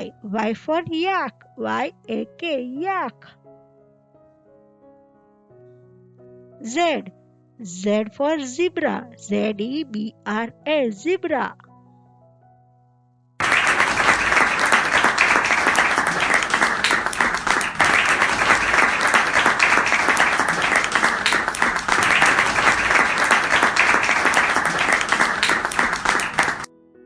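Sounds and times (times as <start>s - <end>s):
audience applause: 13.4s - 26.7s.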